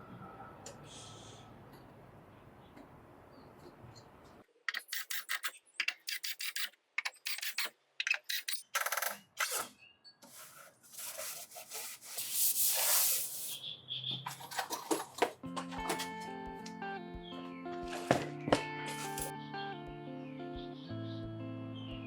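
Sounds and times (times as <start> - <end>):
hand sanding a wall: 10.3 - 13.6.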